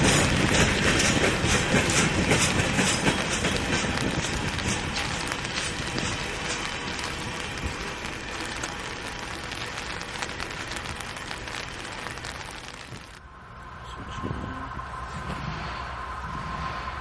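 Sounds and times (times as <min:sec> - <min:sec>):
train wheels clattering on track: 0:00.0 - 0:13.2.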